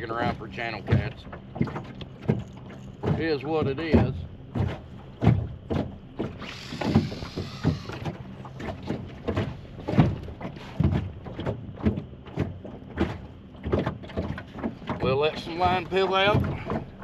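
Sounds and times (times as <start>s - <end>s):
fishing gear knocks and clicks: 0.1s - 17.0s
fishing reel whirring: 6.4s - 8.1s.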